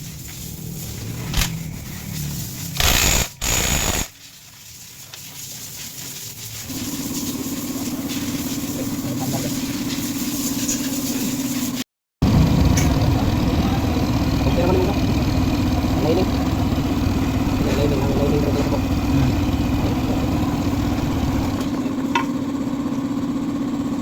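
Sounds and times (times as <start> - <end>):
loud noisy bursts: 2.8 - 4.2
scooter engine idling: 12.2 - 24.0.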